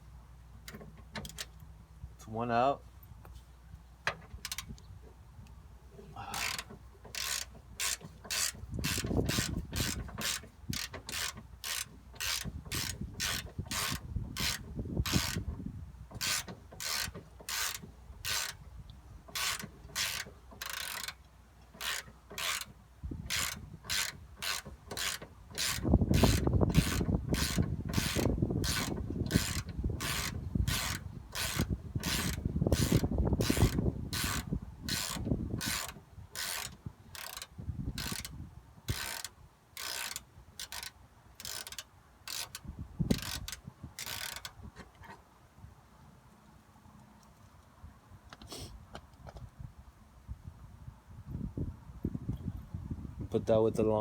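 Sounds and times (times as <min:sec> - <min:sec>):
socket ratchet clicking: 0:06.4 - 0:15.5, 0:16.2 - 0:18.6, 0:19.3 - 0:21.2, 0:21.8 - 0:22.7, 0:23.3 - 0:44.6.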